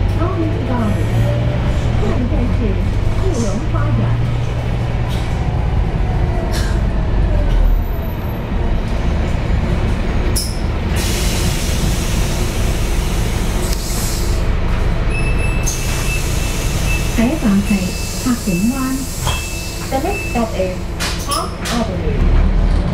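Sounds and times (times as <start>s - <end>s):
bus engine drone: 0.0s - 22.9s
air hissing: 11.0s - 14.4s.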